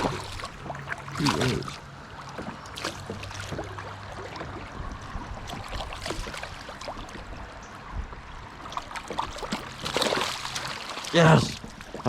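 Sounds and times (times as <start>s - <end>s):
creek water splashing around canoe: 0.0s - 12.0s.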